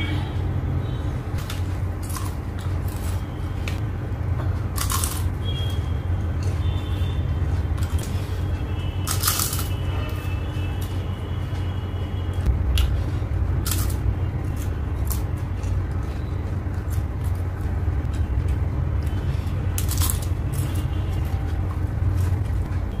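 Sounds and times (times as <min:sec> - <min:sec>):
chewing crisp papad: 0:01.4 - 0:03.8, 0:04.6 - 0:11.8, 0:12.5 - 0:23.0
low rumble: 0:12.5 - 0:23.0.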